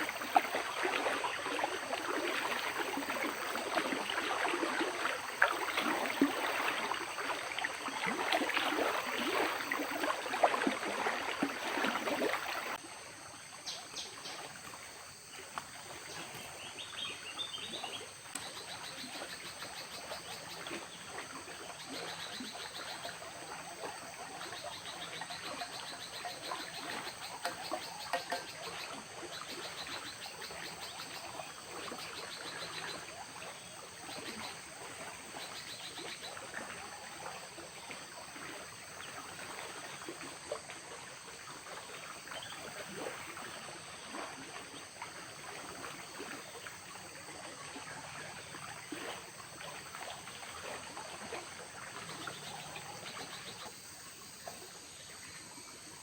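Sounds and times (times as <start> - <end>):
trickling water: 0.0 - 56.0.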